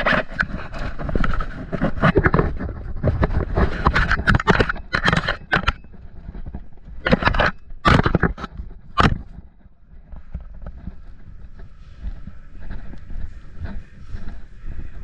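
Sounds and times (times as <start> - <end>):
sharp clicks and knocks: 0.0 - 14.4
scraping and rustling: 0.0 - 15.0.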